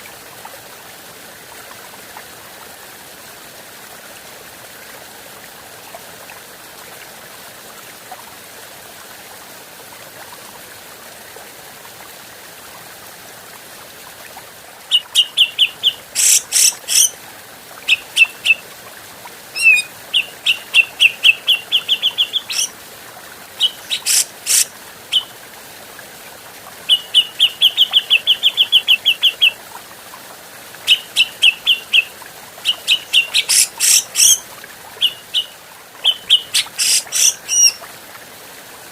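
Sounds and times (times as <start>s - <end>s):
bird chattering calls: 14.9s - 17.1s, 19.6s - 22.7s, 23.6s - 24.7s, 32.7s - 34.4s, 35.0s - 37.8s
harsh rasping bird calls: 14.9s - 17.1s, 19.6s - 22.7s, 23.6s - 25.3s, 32.6s - 34.4s, 35.0s - 37.8s.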